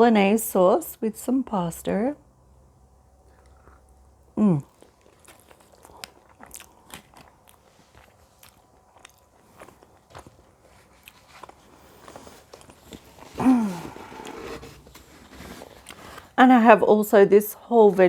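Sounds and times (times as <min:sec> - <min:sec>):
chewing and wet mouth clicks: 0:04.7 - 0:10.3.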